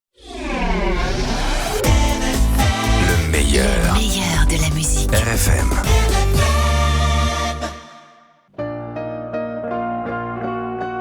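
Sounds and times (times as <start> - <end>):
low drum beat: 1.8 - 7.3.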